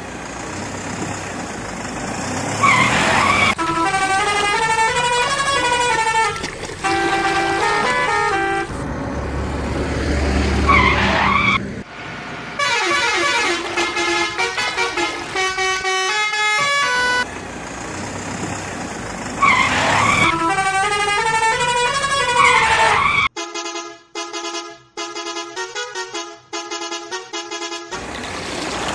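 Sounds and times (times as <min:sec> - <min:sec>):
rumbling engine: 0:00.0 - 0:22.5
melodic horn notes: 0:02.6 - 0:08.9, 0:12.7 - 0:17.2
horn honks: 0:02.6 - 0:09.0, 0:09.9 - 0:11.8, 0:12.6 - 0:17.3, 0:19.4 - 0:28.8
wavering siren-like wails: 0:10.2 - 0:11.8.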